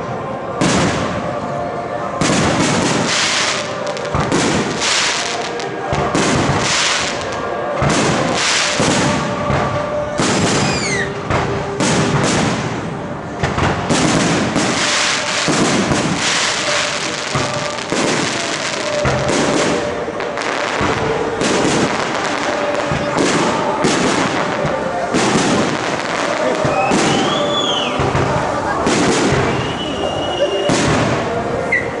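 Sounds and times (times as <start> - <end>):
falling firework whistle: 10.2 - 12.3, 25.3 - 28.1, 29.0 - 32.0.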